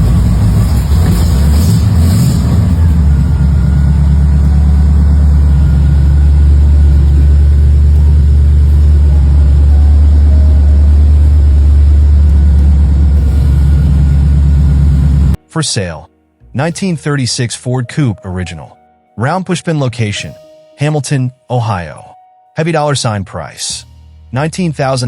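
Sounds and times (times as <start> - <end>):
car engine idling: 0.0 - 15.4.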